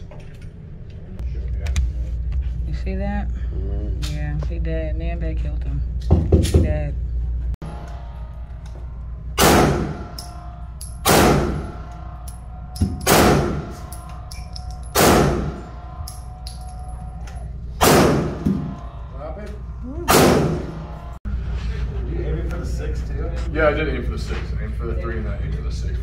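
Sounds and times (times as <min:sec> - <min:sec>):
handgun shots echoing: 0:09.4 - 0:11.8, 0:12.8 - 0:16.8, 0:17.8 - 0:18.6, 0:20.1 - 0:20.7.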